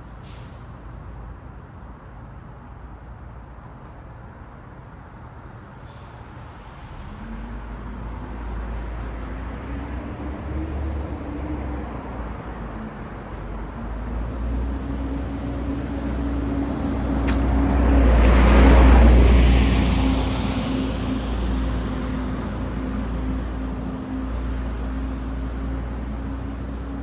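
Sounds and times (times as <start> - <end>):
road traffic rumble: 0.0 - 27.0
vehicle passing: 14.3 - 22.8.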